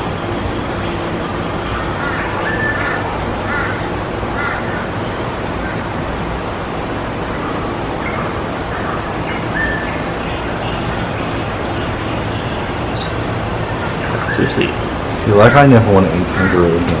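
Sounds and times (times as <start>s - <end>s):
bird cawing: 1.6s - 6.0s, 7.3s - 10.9s, 13.6s - 17.0s.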